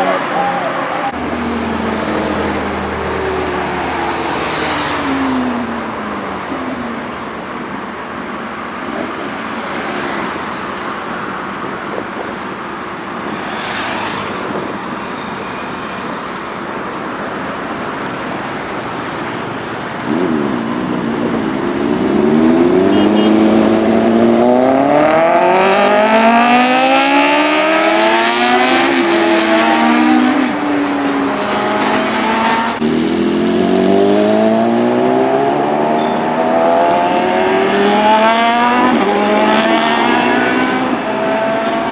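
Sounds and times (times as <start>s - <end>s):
road traffic noise: 0.0s - 41.9s
motorcycle engine revving hard: 19.9s - 41.9s.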